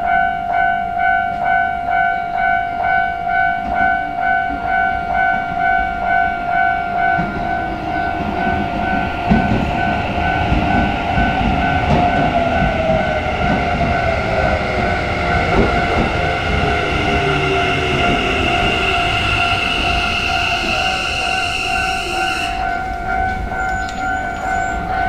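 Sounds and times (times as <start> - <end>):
high ringing tones: 0.0 - 25.0
train motor whine: 6.8 - 25.0
train wheels clicking over rail joints: 7.0 - 25.0.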